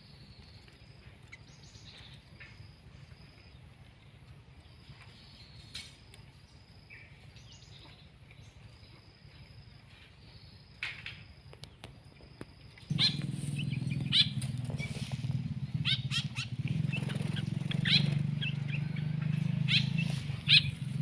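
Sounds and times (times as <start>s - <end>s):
songbirds chirping: 0.0s - 21.0s
low steady hum: 12.0s - 21.0s.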